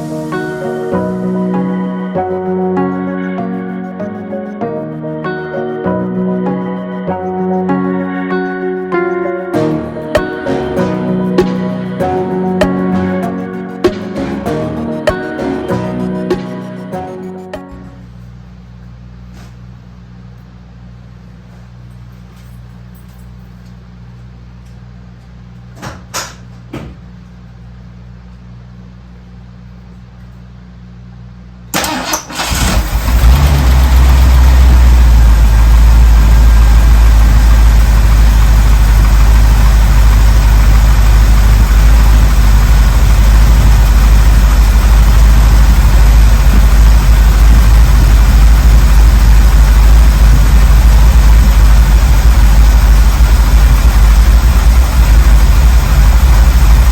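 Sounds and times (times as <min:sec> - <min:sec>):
low hum: 0:00.0 - 0:25.8, 0:32.6 - 0:56.9
car engine cranking and running: 0:31.7 - 0:56.9.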